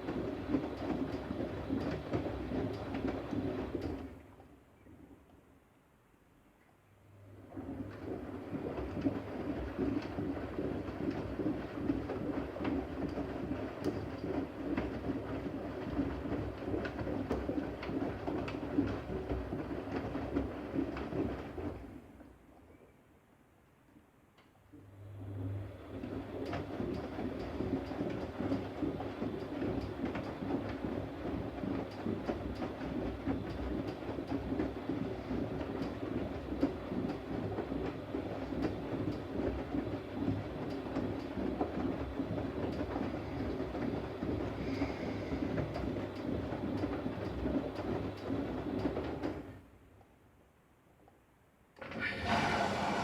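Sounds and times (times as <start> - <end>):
washing machine drum turning: 51.8 - 53.0.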